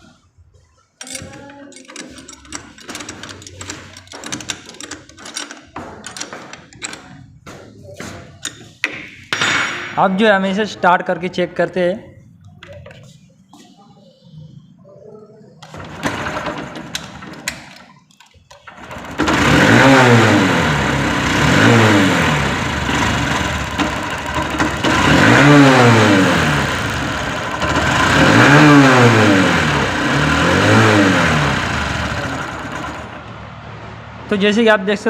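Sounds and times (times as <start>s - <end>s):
starter clicks: 1.0s - 7.2s
motorcycle engine starting and revving: 1.0s - 7.7s, 15.6s - 34.2s.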